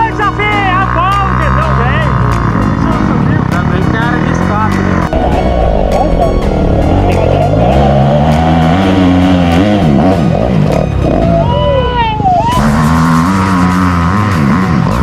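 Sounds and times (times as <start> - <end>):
vehicle engine revving: 0.0 - 11.4, 12.4 - 15.0
sudden rush of noise: 5.1 - 9.6.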